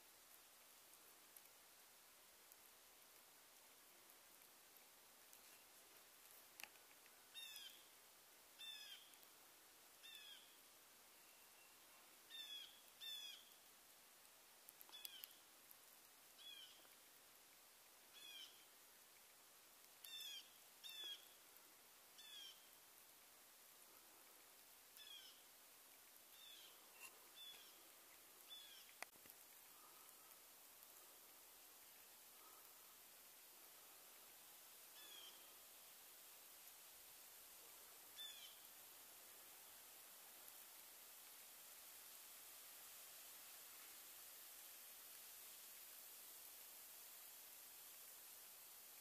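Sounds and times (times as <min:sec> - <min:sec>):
faint bird calling: 0:07.3 - 0:07.9, 0:08.6 - 0:09.2, 0:10.0 - 0:10.6, 0:11.2 - 0:13.6, 0:14.8 - 0:15.4, 0:16.4 - 0:17.0, 0:18.1 - 0:18.7, 0:20.0 - 0:21.4, 0:22.2 - 0:22.8, 0:25.0 - 0:25.5, 0:26.3 - 0:30.4, 0:35.0 - 0:35.6, 0:38.2 - 0:38.7.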